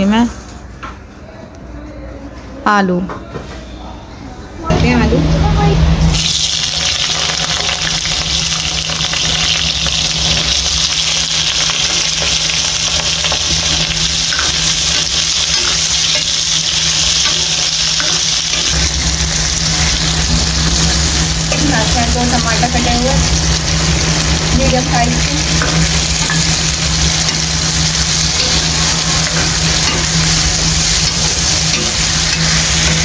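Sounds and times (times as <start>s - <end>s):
low hum: 4.6s - 33.0s
potatoes sizzling in oil: 6.1s - 33.0s
metal spoon stirring: 8.9s - 19.8s, 25.4s - 33.0s.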